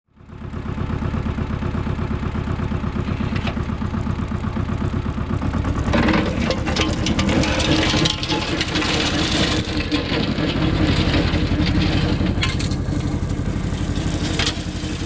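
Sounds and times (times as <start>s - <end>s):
tractor diesel engine running: 0.1s - 15.0s
harsh clatter: 5.7s - 15.0s.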